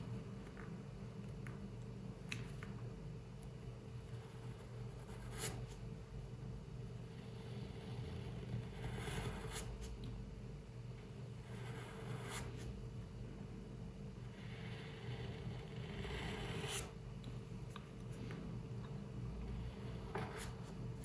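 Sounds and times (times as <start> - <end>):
steady low hum: 0.0 - 21.0
pencil scratching on paper: 4.1 - 5.8, 7.2 - 9.9, 11.4 - 12.8, 14.3 - 17.0, 19.5 - 20.7.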